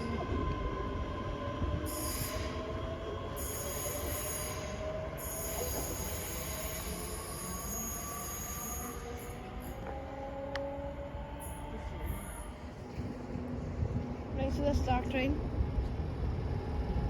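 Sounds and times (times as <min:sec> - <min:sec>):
low train rumble: 0:00.0 - 0:17.0
train wheels squealing: 0:01.8 - 0:09.8.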